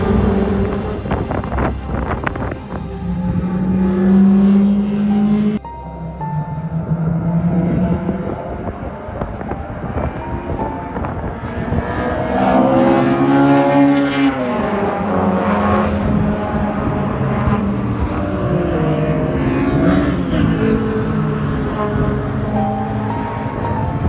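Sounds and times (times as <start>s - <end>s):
race cars passing: 0.0s - 24.0s.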